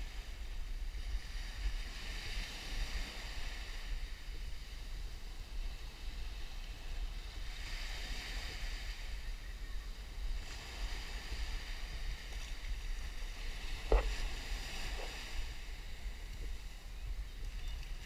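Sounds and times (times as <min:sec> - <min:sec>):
surf washing on beach: 0:00.0 - 0:18.0
wind buffeting microphone: 0:00.0 - 0:18.0
bump on microphone: 0:13.8 - 0:14.3.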